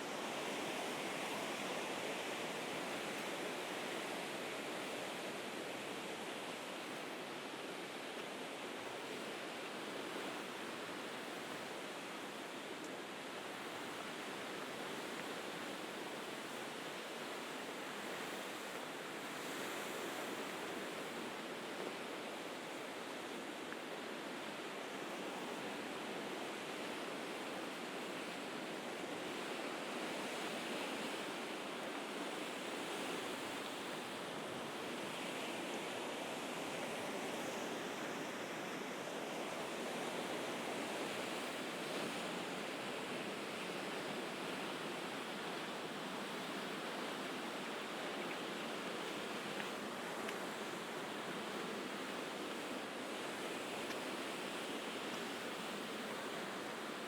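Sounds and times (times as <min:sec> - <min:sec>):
sea waves washing on shore: 0:00.0 - 0:57.0.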